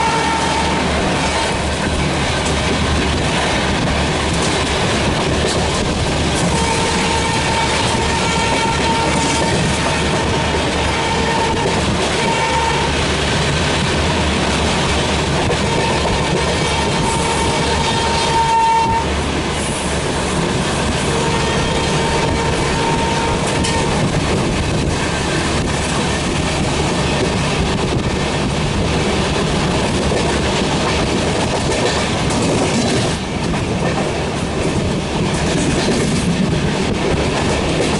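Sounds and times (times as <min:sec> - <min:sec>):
train horn blasts: 0:00.0 - 0:00.9, 0:06.4 - 0:13.0, 0:15.6 - 0:19.2, 0:21.0 - 0:24.1
train clickety-clack: 0:00.0 - 0:37.9.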